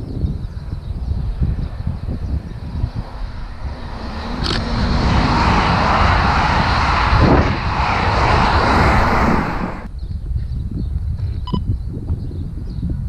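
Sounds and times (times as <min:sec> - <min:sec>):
wind buffeting microphone: 0:00.0 - 0:13.0
train passing at speed: 0:02.3 - 0:09.9.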